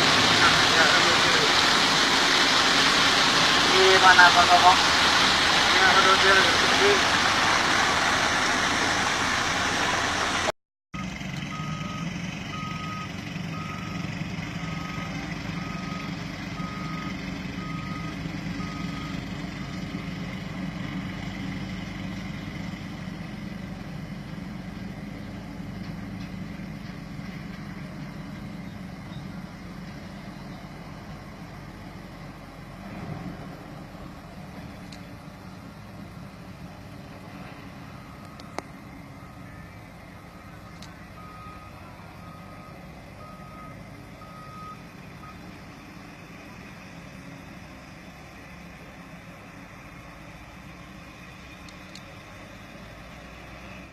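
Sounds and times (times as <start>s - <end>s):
loud noise: 0.0s - 10.5s
heavy truck running: 0.0s - 53.9s
reversing alarm beeping: 11.0s - 19.9s, 37.9s - 45.5s.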